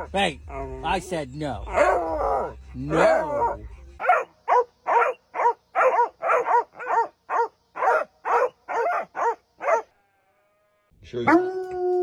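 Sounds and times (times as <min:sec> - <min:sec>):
dog yelping barks: 0:01.7 - 0:09.9.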